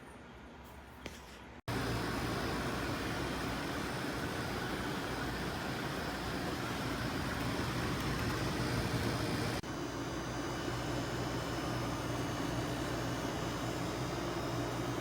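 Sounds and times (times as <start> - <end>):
fan air rushing: 1.1 - 15.0
low compressor hum: 1.7 - 9.6.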